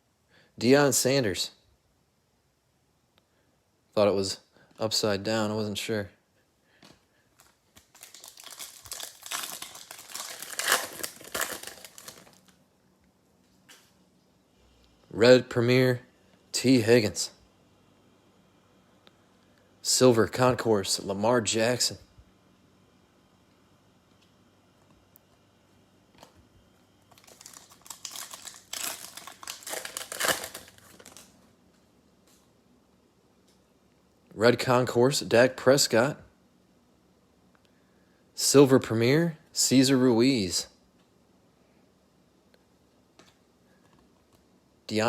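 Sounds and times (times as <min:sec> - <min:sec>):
plastic wrapper crinkling: 0:07.4 - 0:12.6, 0:27.1 - 0:31.4.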